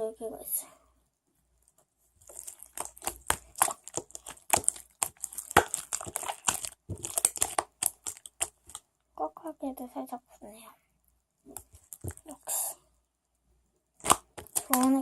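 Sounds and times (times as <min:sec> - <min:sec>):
sticky slime crackling: 0:02.2 - 0:08.8, 0:11.5 - 0:12.7, 0:14.0 - 0:15.0.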